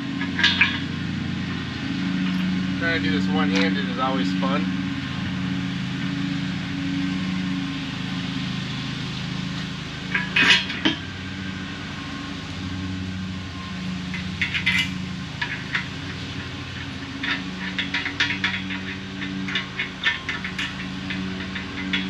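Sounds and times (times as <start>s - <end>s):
steady low hum: 0.0s - 22.0s
metal tools clinking on steel: 0.2s - 0.8s, 10.1s - 11.0s, 14.1s - 22.0s.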